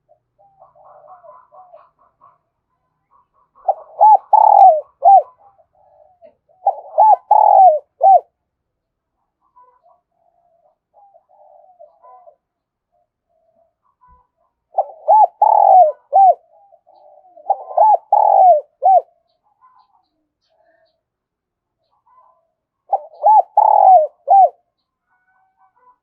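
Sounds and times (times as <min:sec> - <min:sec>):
dove cooing: 0:00.0 - 0:02.5, 0:03.1 - 0:08.3, 0:09.8 - 0:12.4, 0:14.7 - 0:19.9, 0:21.9 - 0:26.0.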